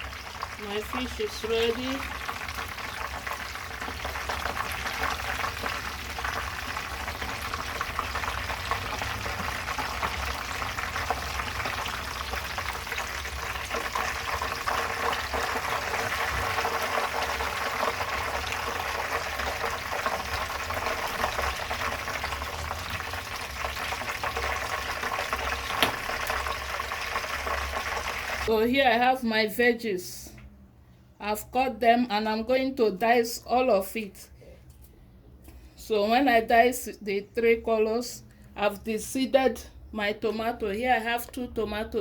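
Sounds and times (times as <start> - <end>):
fish deep-frying in oil: 0.0 - 28.5.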